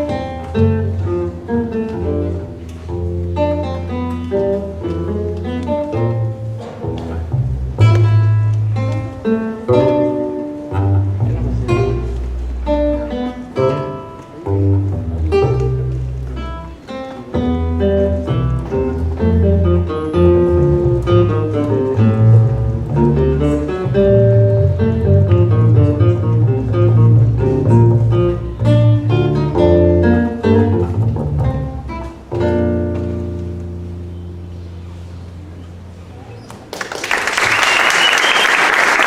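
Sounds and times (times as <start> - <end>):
instrumental ensemble playing: 0.0 - 34.5.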